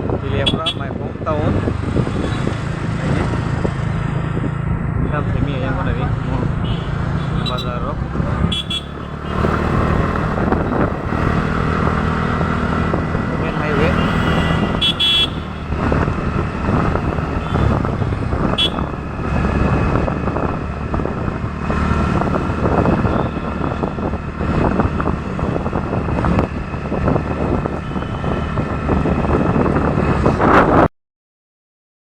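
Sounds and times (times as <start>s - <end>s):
road and traffic noise: 0.0s - 30.9s
scooter engine hum: 0.4s - 29.2s
high horn beeps: 6.6s - 7.8s, 8.4s - 9.7s, 13.5s - 15.7s, 18.5s - 19.0s, 27.8s - 28.5s.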